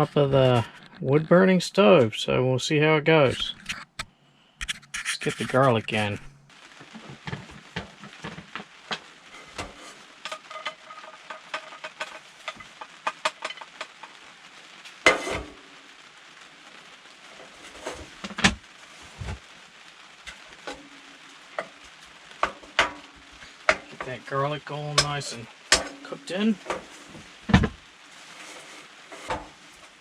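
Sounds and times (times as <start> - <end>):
garlic sizzling in butter: 6.6 - 30.0
utensil scraping pot: 9.3 - 14.1, 15.1 - 15.6, 22.4 - 27.4, 28.1 - 30.0.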